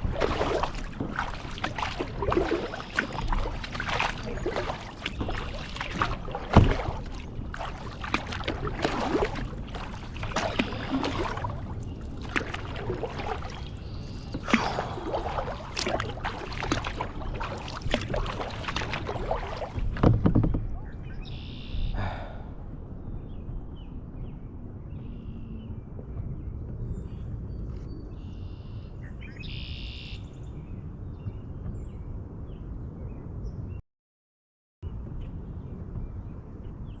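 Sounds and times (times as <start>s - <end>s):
kayak paddle splashing in water: 0.0s - 21.7s
water trickling off paddle: 0.0s - 21.7s.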